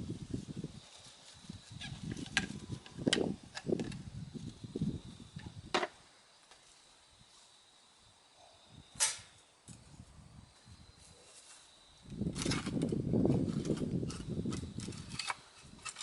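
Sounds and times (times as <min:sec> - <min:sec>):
rustling and handling noise: 0:00.3 - 0:04.6, 0:11.0 - 0:16.0.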